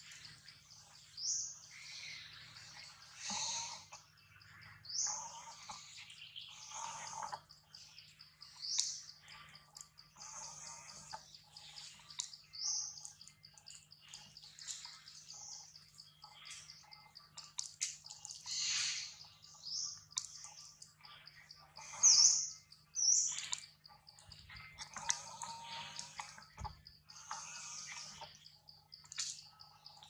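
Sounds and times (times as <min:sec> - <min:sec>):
wild birds chirping: 0:00.0 - 0:30.0
loud sweeping bird calls: 0:18.2 - 0:23.7.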